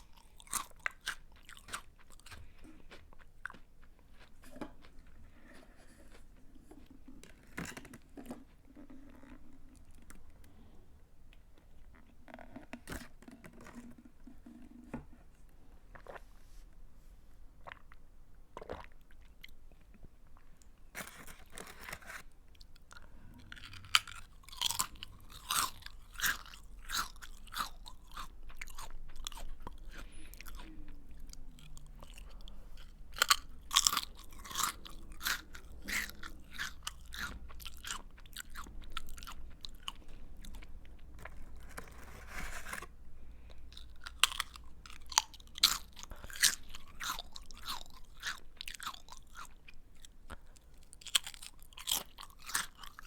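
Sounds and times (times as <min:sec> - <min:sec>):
person chewing crunchy snack: 0:00.0 - 0:10.2, 0:21.0 - 0:53.0.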